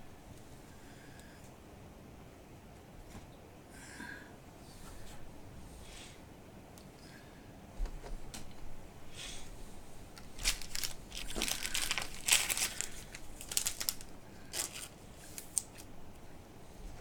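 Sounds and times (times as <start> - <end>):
packaging crinkling and rustling: 10.1 - 15.9.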